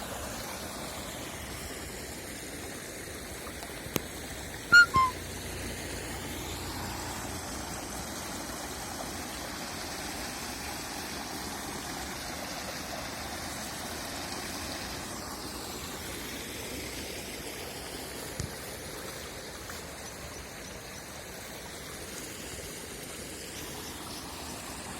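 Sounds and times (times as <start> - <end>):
water rushing: 0.0 - 24.9.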